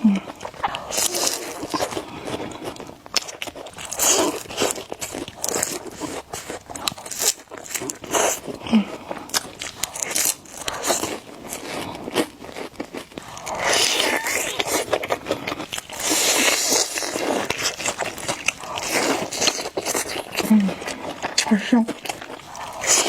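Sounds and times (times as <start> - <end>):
chewing with crunches: 0.0 - 23.0
noodle slurping: 13.1 - 20.9.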